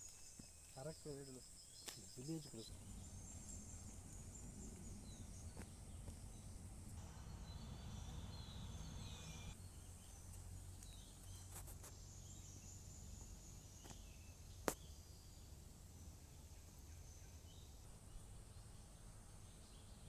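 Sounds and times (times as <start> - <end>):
low rumble: 2.7 - 9.6.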